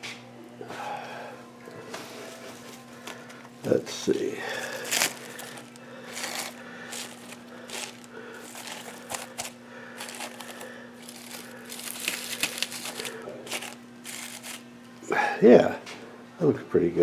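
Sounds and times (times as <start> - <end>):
faint steady hum: 0.0 - 17.0
paper crinkling and rustling: 1.8 - 14.7.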